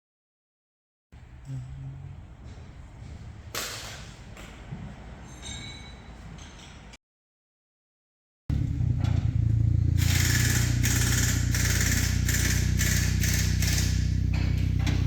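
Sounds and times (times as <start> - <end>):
car engine running at low revs: 8.5 - 15.0.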